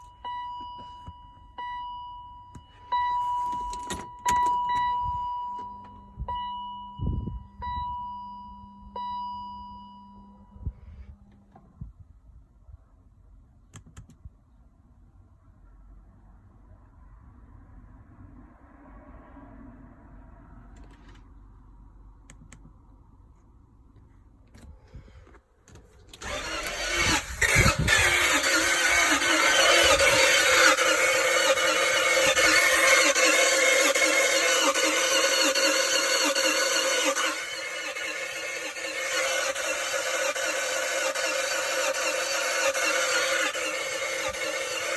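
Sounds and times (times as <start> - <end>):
car warning chime: 0.0 - 10.6
engine starting: 24.6 - 44.9
starter cranking engine: 24.6 - 44.9.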